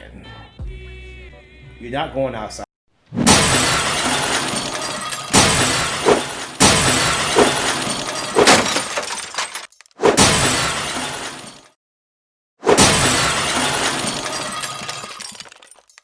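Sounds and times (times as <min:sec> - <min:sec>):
loud shattering crashes: 0:03.2 - 0:11.7, 0:12.7 - 0:16.0.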